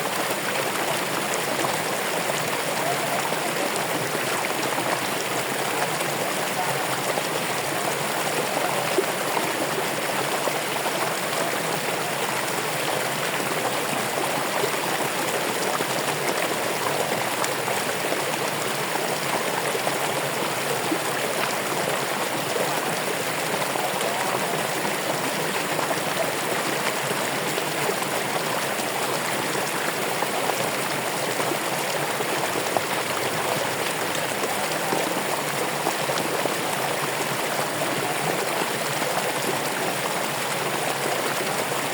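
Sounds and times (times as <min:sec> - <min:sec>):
stream flowing over rocks: 0:00.0 - 0:41.9.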